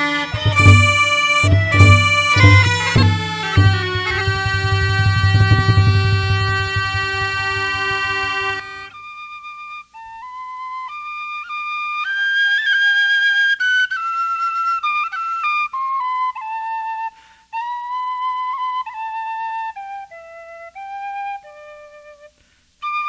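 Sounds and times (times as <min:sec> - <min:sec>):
musical accompaniment: 0:00.0 - 0:11.0
tin whistle playing: 0:00.0 - 0:23.0.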